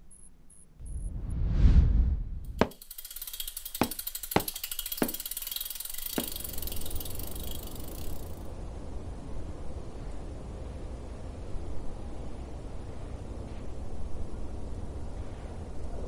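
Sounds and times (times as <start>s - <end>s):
steady low rumble: 0.7s - 2.6s, 6.4s - 16.0s
bicycle freewheel ticking: 2.6s - 8.5s.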